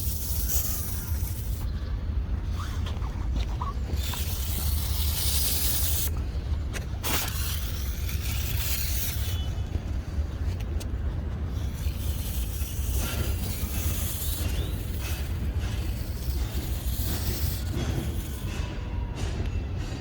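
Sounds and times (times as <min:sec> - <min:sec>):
hand sprayer hissing: 0:04.0 - 0:06.1, 0:11.5 - 0:18.6.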